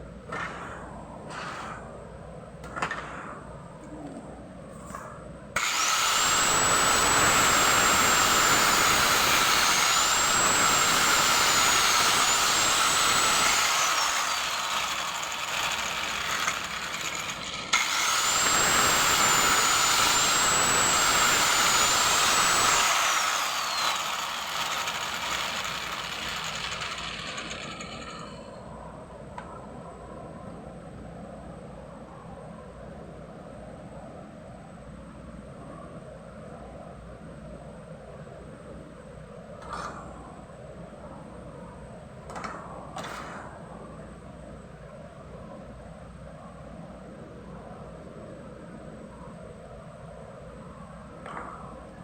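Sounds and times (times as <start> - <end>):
electric hand drill whining: 5.6 - 28.6.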